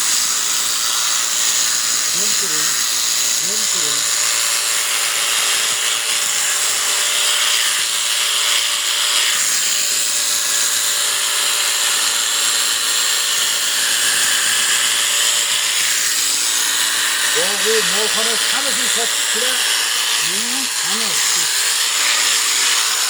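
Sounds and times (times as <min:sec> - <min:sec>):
electric sheep shears buzzing: 0:00.0 - 0:23.0.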